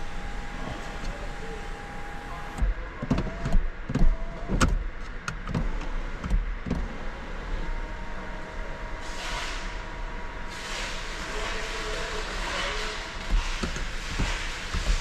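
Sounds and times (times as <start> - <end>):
sharp clicks and knocks: 2.6 - 6.9, 13.2 - 15.0.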